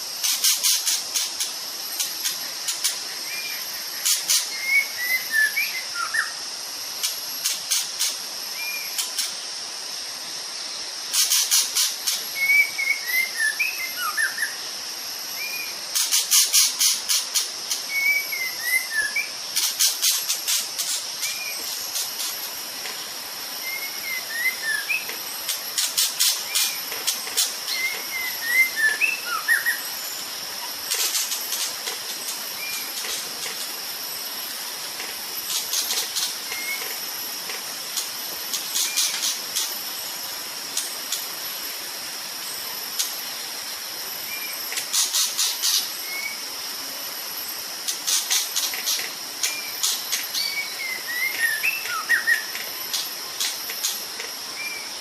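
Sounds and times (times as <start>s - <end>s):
high insect drone: 0.0s - 55.0s
bird whistling: 4.6s - 6.3s, 12.4s - 14.6s, 17.9s - 19.3s, 23.6s - 25.1s, 27.7s - 29.8s, 50.4s - 52.5s.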